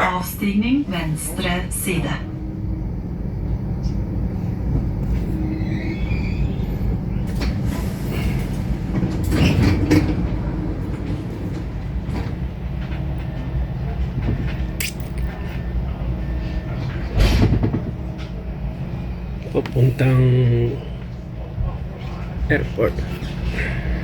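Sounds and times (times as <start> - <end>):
train rumbling on rails: 0.0 - 24.0.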